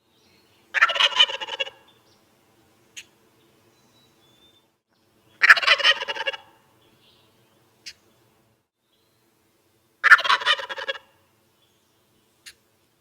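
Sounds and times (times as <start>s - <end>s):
turkey gobbling: 0.8s - 1.9s, 5.4s - 6.6s, 10.0s - 11.2s.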